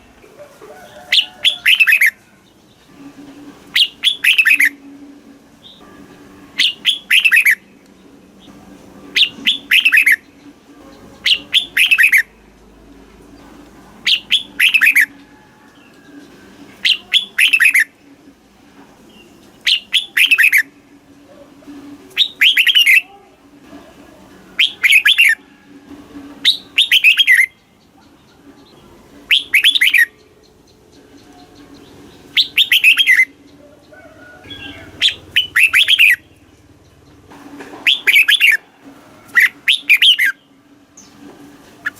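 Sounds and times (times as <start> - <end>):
bird whistled song phrases: 3.7 - 4.8, 6.6 - 7.6, 9.2 - 10.3, 11.2 - 12.3, 14.1 - 15.1, 16.8 - 17.9, 19.6 - 20.7, 22.1 - 23.1, 24.6 - 25.4, 26.4 - 27.6, 29.3 - 30.2, 32.3 - 33.4, 34.5 - 36.2, 37.8 - 38.6, 39.4 - 40.4.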